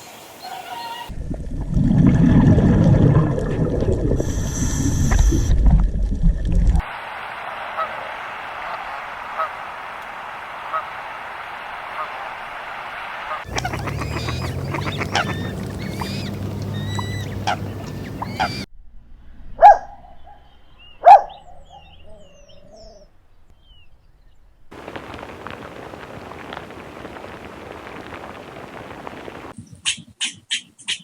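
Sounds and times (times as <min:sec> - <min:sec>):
birds chirping: 0:00.0 - 0:01.1, 0:06.9 - 0:18.7, 0:19.7 - 0:31.0
loud honk-like bird calls: 0:00.4 - 0:01.1, 0:07.4 - 0:18.7
steady hiss: 0:06.8 - 0:13.6, 0:24.7 - 0:29.6
low hum: 0:13.5 - 0:20.8.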